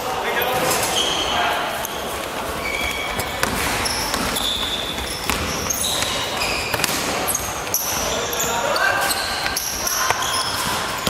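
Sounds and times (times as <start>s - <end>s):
indoor hall noise: 0.0s - 11.0s
sneaker squeaks on floor: 0.3s - 11.0s
basketball bouncing: 1.9s - 8.2s.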